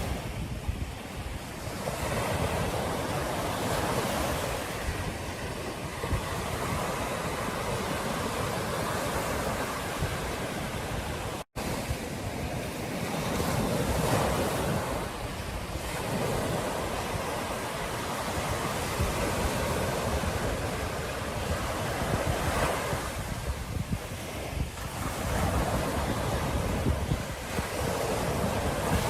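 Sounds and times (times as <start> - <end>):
ocean surf on beach: 0.0 - 29.0
wind on microphone: 0.0 - 29.0.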